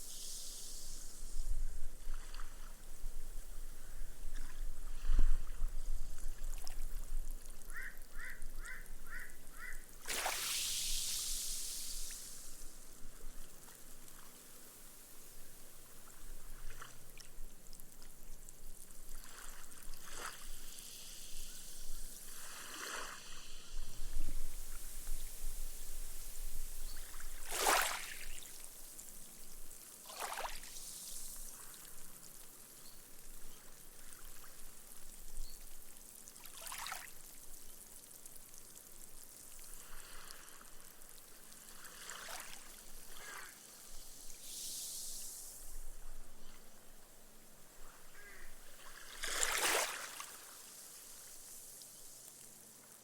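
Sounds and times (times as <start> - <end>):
gentle ripples on sandy beach: 0.0 - 53.0
foam fizzing: 10.0 - 13.0, 43.4 - 45.9.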